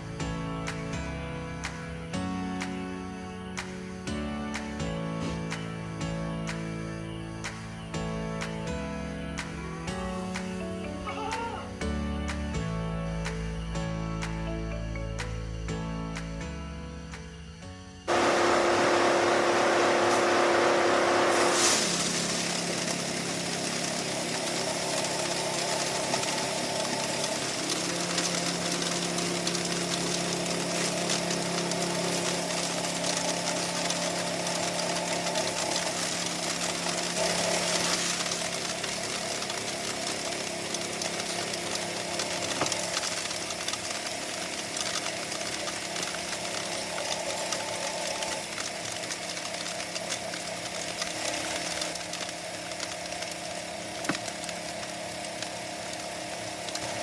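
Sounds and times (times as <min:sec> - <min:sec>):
machine motor hum: 0:18.1 - 0:57.0
sieve mechanical clatter: 0:18.1 - 0:57.0.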